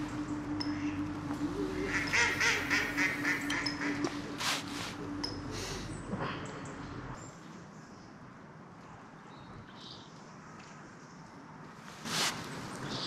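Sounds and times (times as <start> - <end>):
duck quacking: 0.7 - 5.0.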